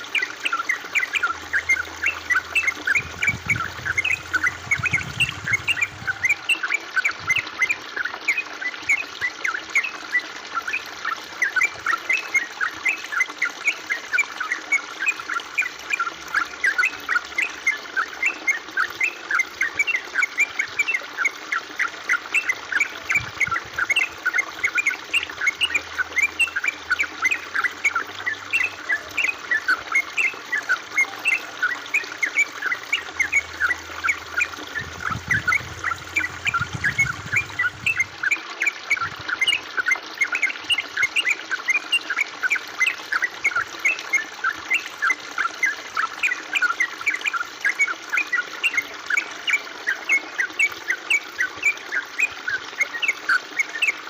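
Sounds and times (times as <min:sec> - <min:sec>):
water trickling and dripping: 0:00.0 - 0:54.0.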